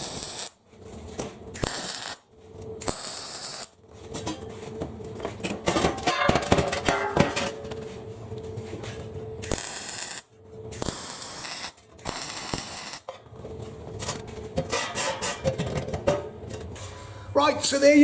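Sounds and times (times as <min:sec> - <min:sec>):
welding crackle: 0:00.0 - 0:00.6, 0:01.5 - 0:03.8, 0:09.4 - 0:13.1.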